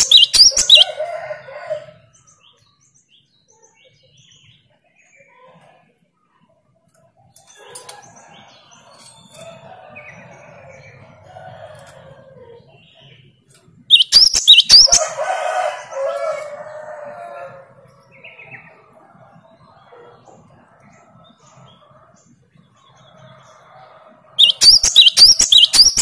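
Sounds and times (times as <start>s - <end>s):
sharp high whistled bird notes: 0.0s - 0.8s, 13.9s - 15.0s, 24.4s - 26.0s
drawn-out bird calls: 0.0s - 1.0s, 13.9s - 15.2s, 24.4s - 26.0s.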